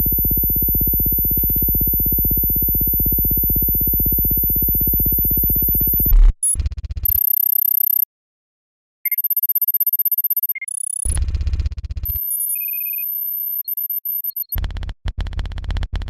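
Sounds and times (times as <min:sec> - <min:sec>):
low pulsing synthesizer buzz: 0:00.0 - 0:07.0.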